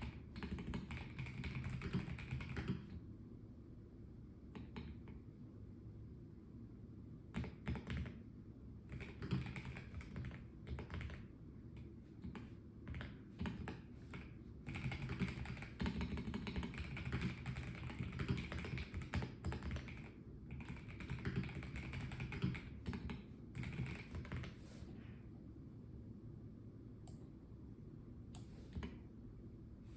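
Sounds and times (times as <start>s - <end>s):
mechanical keyboard typing: 0.0s - 3.0s, 7.3s - 8.2s, 8.9s - 11.3s, 12.2s - 24.6s.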